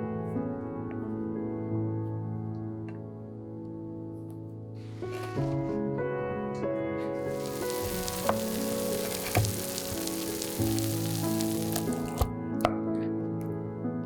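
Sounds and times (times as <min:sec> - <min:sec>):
food sizzling in a pan: 0:07.3 - 0:12.3.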